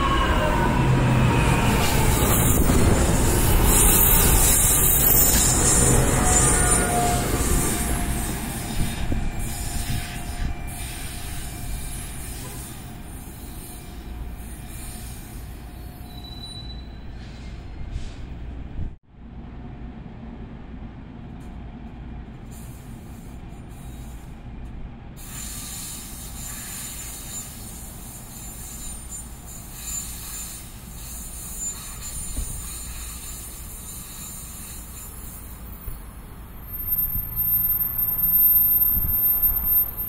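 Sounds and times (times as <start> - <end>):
high-pitched wheel squealing: 0.0 - 17.6, 26.2 - 40.0
train rumbling on rails: 0.0 - 40.0.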